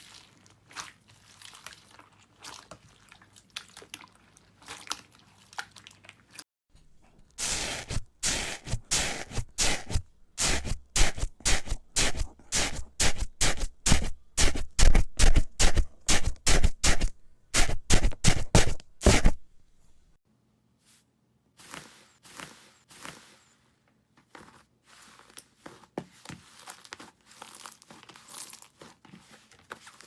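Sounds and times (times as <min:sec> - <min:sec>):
crunchy slime scraping: 0:07.3 - 0:19.5.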